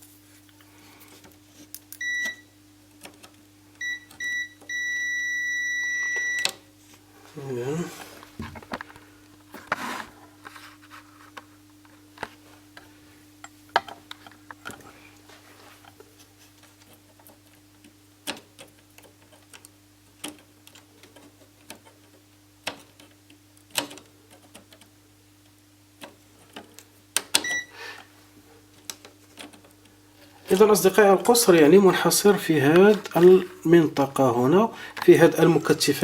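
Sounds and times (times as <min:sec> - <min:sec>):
steady low hum: 0:00.0 - 0:18.3
multimeter beep: 0:02.0 - 0:02.5, 0:03.8 - 0:06.5, 0:27.4 - 0:27.8.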